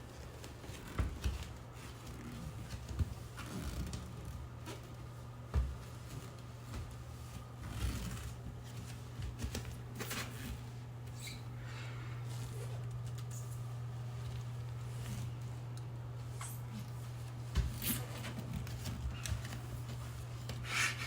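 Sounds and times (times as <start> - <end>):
handling knocks and rustles: 0.0 - 11.5, 12.2 - 21.0
low steady hum: 0.0 - 21.0.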